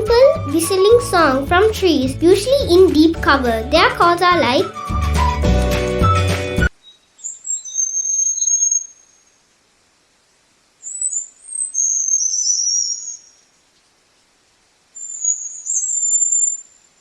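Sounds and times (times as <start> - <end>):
bird whistling calls: 6.1 - 9.2, 10.8 - 13.4, 15.0 - 16.7.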